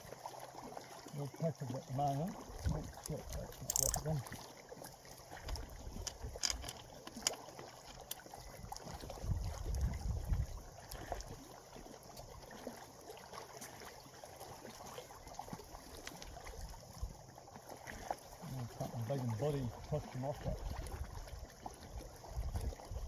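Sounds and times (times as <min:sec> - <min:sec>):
small waves lapping: 0:00.0 - 0:23.0
small clicks: 0:03.0 - 0:04.1, 0:05.4 - 0:08.9.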